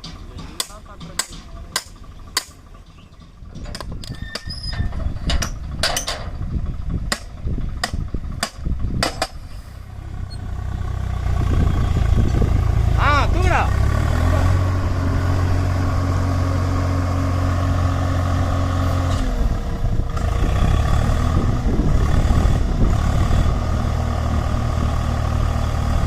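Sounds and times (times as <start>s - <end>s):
sharp clicks and knocks: 0.0s - 2.6s, 3.2s - 6.4s, 7.1s - 9.4s
diesel engine rumbling: 0.0s - 26.0s.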